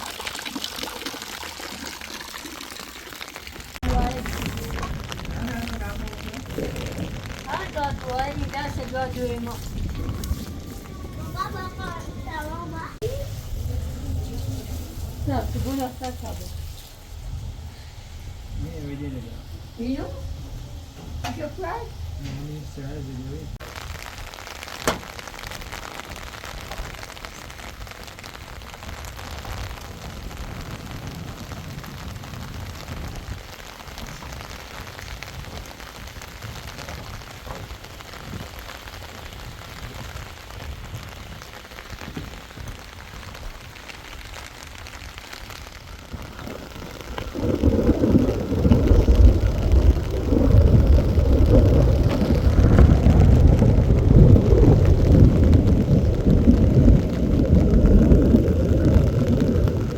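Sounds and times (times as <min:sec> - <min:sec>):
steady rain falling: 0:00.0 - 0:59.9
loud low rumbling noise: 0:03.8 - 0:23.9, 0:45.6 - 0:59.9
sharp tap: 0:24.8 - 0:25.1.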